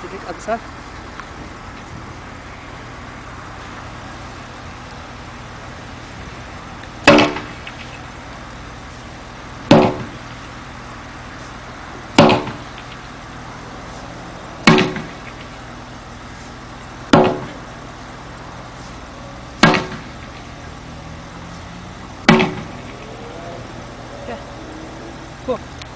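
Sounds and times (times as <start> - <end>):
wooden staff striking tyre: 7.0 - 8.0, 9.6 - 10.3, 12.1 - 13.0, 14.6 - 15.6, 17.1 - 17.7, 19.6 - 20.5, 22.2 - 23.6.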